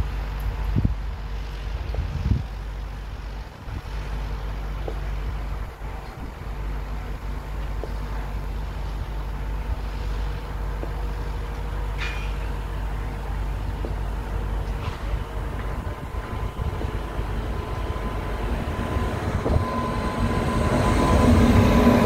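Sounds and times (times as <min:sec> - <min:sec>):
distant train rumble: 0:00.0 - 0:22.0
wind on microphone: 0:00.6 - 0:04.2, 0:14.6 - 0:22.0.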